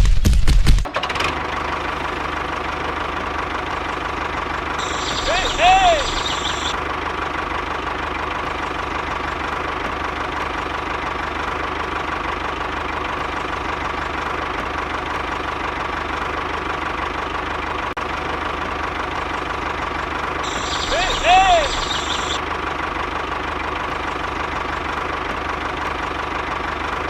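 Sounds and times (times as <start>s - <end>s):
engine idling with even knock: 0.0s - 27.0s.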